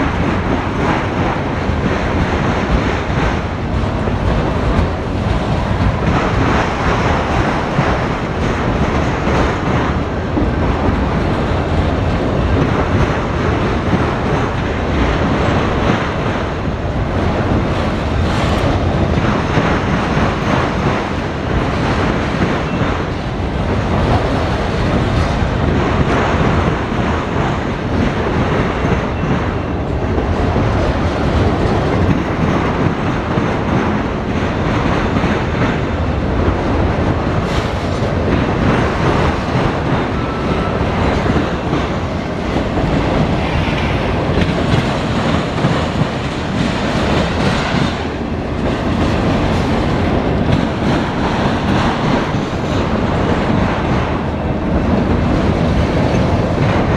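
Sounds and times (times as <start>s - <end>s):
steel wheels running on rails: 0.0s - 56.9s.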